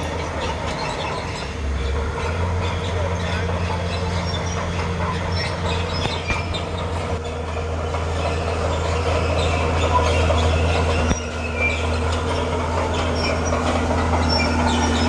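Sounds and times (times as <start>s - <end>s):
diesel engine running: 0.0s - 15.0s
steel tracks clanking: 0.0s - 15.0s
tracks squeaking: 0.0s - 15.0s.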